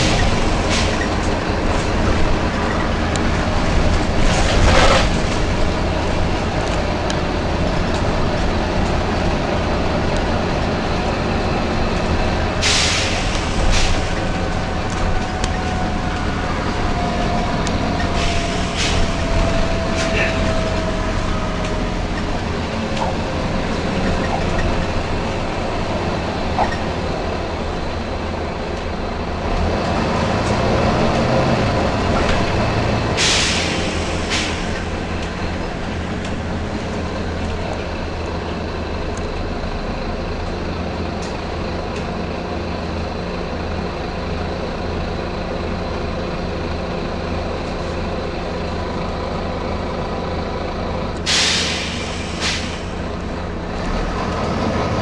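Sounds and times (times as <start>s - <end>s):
bus diesel engine running: 0.0s - 55.0s
compressed air hissing: 12.6s - 14.1s, 33.2s - 34.7s, 51.3s - 53.0s.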